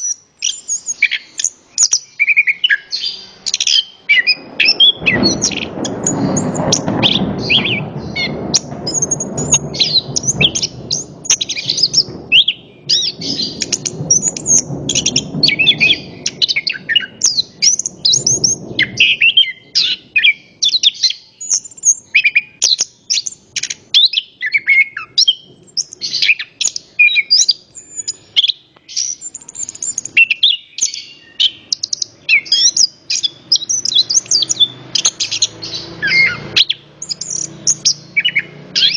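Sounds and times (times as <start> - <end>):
thrush singing: 0.0 - 24.0, 29.5 - 38.9
low background rumble: 3.2 - 20.2.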